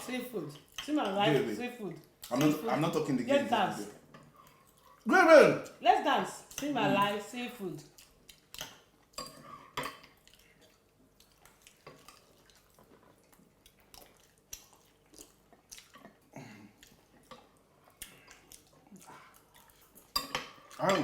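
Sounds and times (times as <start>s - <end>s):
cutlery clinking on plates: 8.6s - 10.2s, 20.0s - 21.0s.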